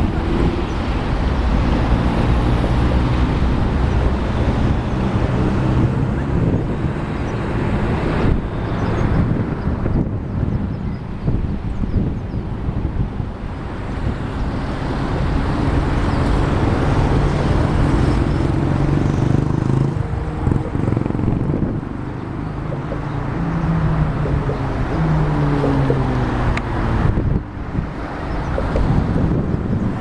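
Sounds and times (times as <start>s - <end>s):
passing vehicle engine hum: 0.0s - 30.0s
wind buffeting microphone: 0.0s - 30.0s.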